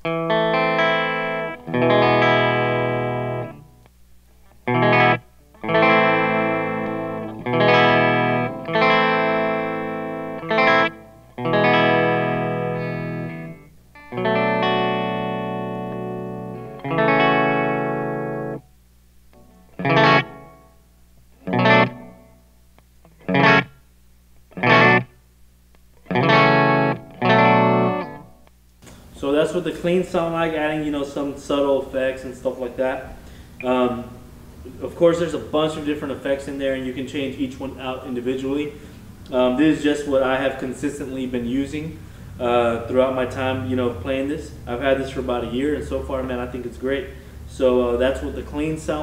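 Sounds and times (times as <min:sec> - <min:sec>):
clean electric guitar chords: 0:00.0 - 0:03.8, 0:04.4 - 0:18.7, 0:19.4 - 0:23.9, 0:24.5 - 0:25.2, 0:26.0 - 0:29.3, 0:36.9 - 0:49.0.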